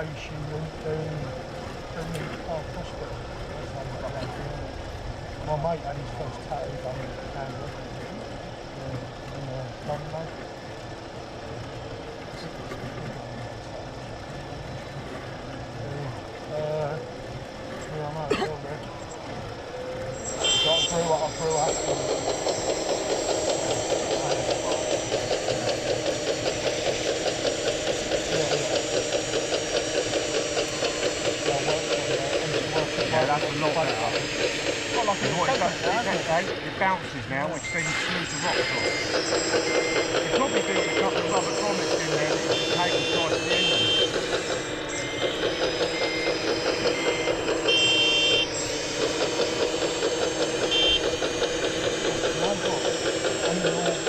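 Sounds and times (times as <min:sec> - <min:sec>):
small motor rattling: 0:00.0 - 0:54.0
reversing alarm beeps: 0:20.2 - 0:36.4, 0:37.4 - 0:54.0.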